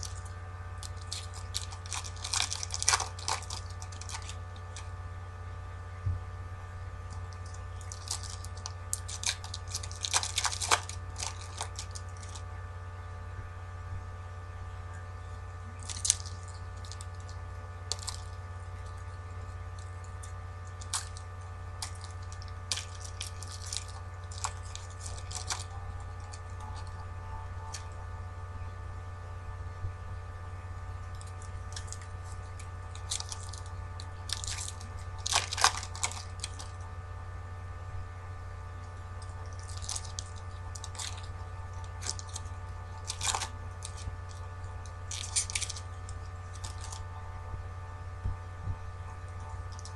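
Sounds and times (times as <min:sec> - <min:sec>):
card wrappers crinkling: 0:00.0 - 0:04.9, 0:07.3 - 0:12.4, 0:21.8 - 0:27.0, 0:31.2 - 0:36.8, 0:39.5 - 0:44.5
steady electrical hum: 0:00.0 - 0:49.9.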